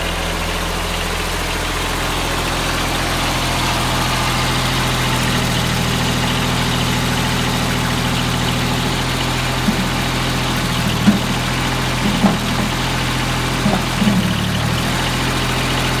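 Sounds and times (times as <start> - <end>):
diesel engine idling: 0.0 - 16.0
short clunks: 9.6 - 13.0, 13.6 - 14.6.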